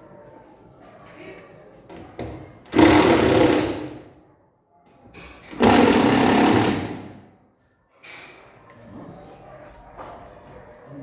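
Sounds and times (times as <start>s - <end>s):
power tool running: 2.7s - 4.0s, 5.6s - 7.2s.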